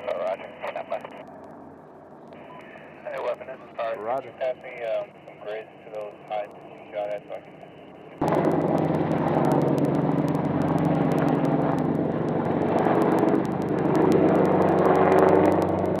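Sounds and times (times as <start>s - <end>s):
rapid crackling clicks: 2.2s - 16.0s
loud engine running: 8.2s - 16.0s.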